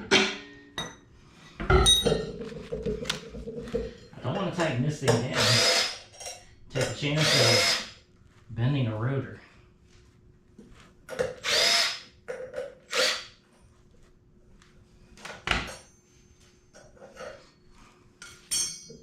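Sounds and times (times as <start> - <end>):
cordless drill whirring: 5.4 - 6.0, 7.2 - 8.0, 11.4 - 12.1, 12.9 - 13.3.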